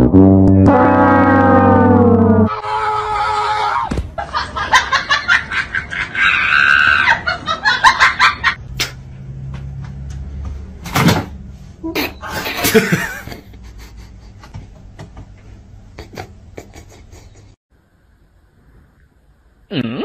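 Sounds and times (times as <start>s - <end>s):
low hum: 0.0s - 2.7s
long high-pitched scream: 2.4s - 3.9s
people shouting and laughing: 2.5s - 8.6s.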